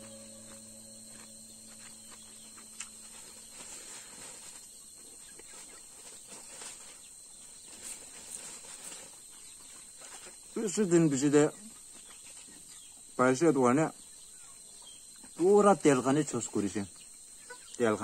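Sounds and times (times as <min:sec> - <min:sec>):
high-pitched insect drone: 0:00.0 - 0:07.6.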